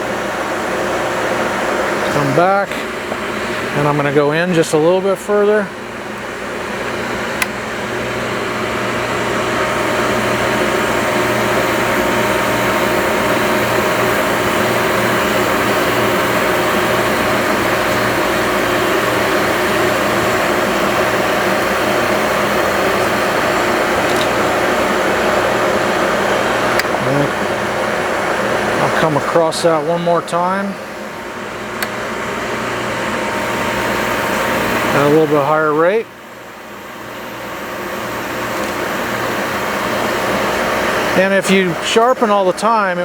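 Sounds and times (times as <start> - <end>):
sharpener motor grinding blade: 10.0 - 25.0.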